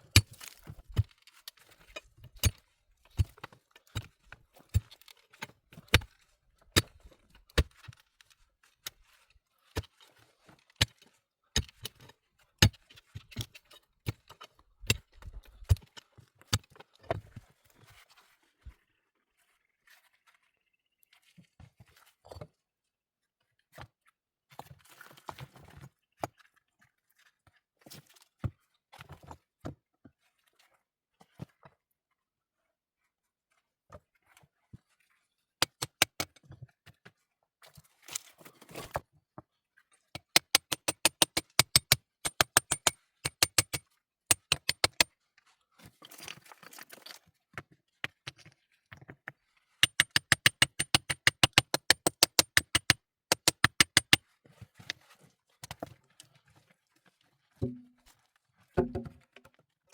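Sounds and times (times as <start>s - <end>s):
sharp knocks and clicks: 35.6s - 36.4s, 40.2s - 45.1s, 49.8s - 54.2s.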